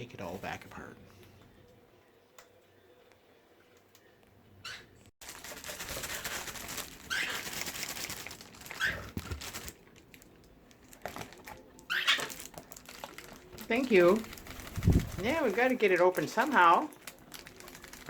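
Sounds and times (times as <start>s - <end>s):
packaging bag rustling: 5.2s - 18.0s.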